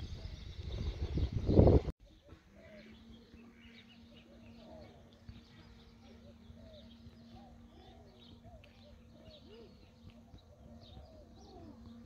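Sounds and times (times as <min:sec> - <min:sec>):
faint birds chirping: 0:00.0 - 0:12.0
low steady hum: 0:00.0 - 0:12.0.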